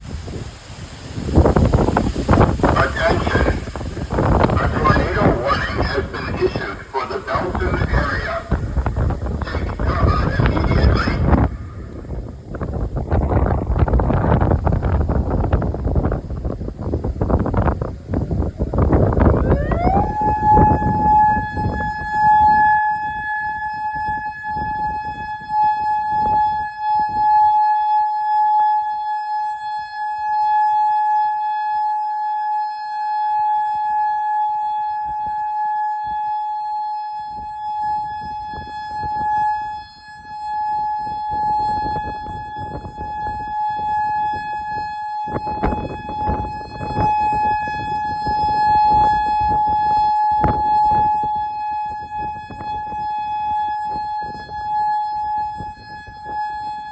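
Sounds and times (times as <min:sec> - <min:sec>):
warning siren steady tone: 0:01.4 - 0:56.9.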